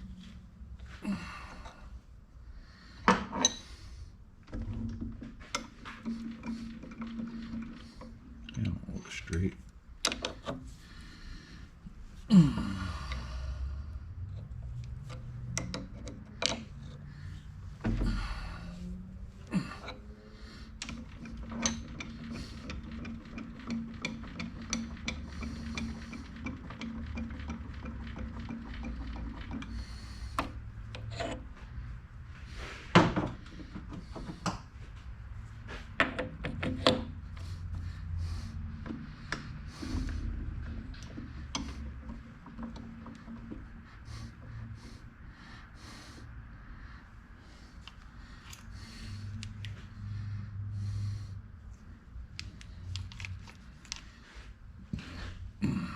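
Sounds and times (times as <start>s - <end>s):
lathe humming: 4.6s - 9.5s, 10.1s - 31.6s
metal tools clicking and knocking: 19.5s - 31.4s, 52.4s - 54.1s.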